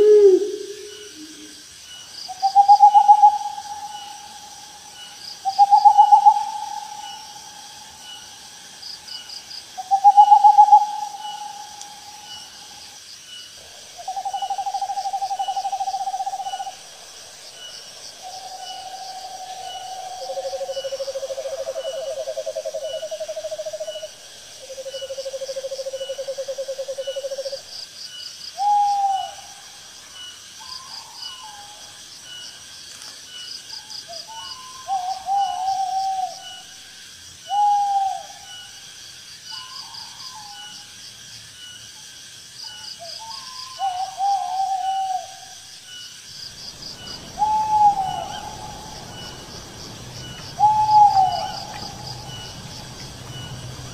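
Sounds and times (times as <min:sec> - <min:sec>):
owl hooting: 0:00.0 - 0:01.6, 0:02.3 - 0:08.3, 0:09.8 - 0:12.8, 0:14.0 - 0:16.8, 0:37.5 - 0:38.7, 0:43.1 - 0:45.5, 0:46.5 - 0:53.9
insects ticking and chirping: 0:00.0 - 0:53.9.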